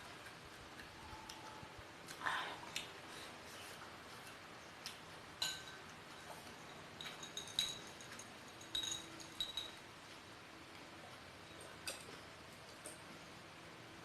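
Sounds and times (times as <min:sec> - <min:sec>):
utensils clinking against dish: 0:05.4 - 0:09.8.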